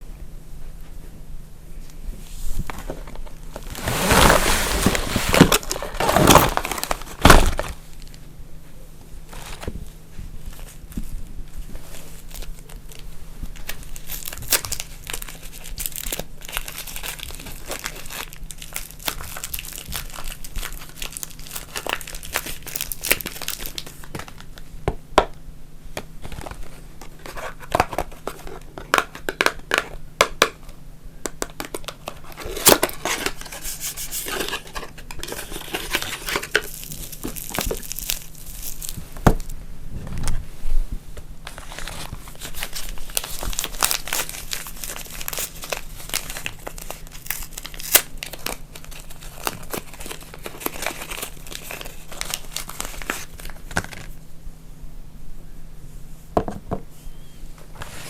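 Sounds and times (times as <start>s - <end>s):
wrappers crinkling and tearing: 3.6s - 8.2s, 11.9s - 24.6s, 31.5s - 39.5s, 41.5s - 54.2s.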